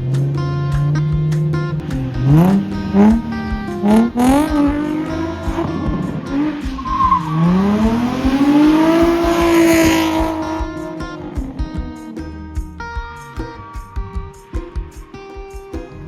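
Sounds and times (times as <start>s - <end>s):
car engine revving: 0.0s - 15.0s
background music: 0.0s - 16.0s
tyres squealing: 0.1s - 12.1s.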